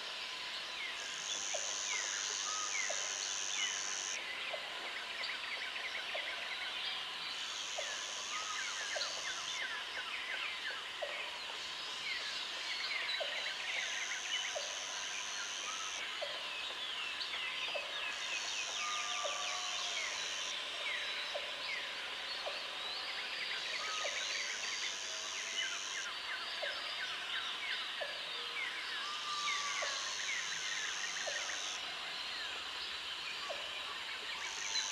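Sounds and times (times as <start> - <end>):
insect chorus: 0.0 - 34.9
high insect buzz: 1.0 - 4.2.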